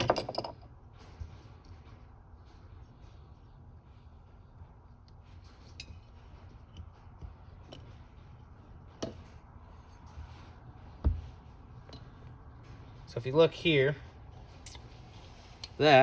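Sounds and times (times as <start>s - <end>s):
dull thump: 11.0s - 11.3s.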